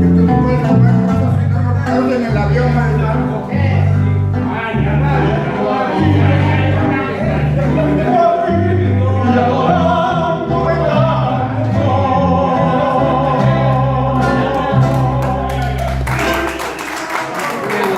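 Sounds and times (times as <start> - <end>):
band playing a song: 0.0 - 17.9
person singing: 4.4 - 16.6
people clapping: 14.2 - 17.9.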